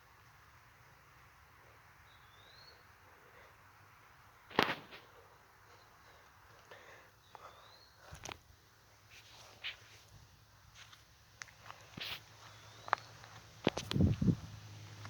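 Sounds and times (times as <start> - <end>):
rising bird chirp: 2.0 - 3.4, 7.1 - 8.1, 12.5 - 13.2.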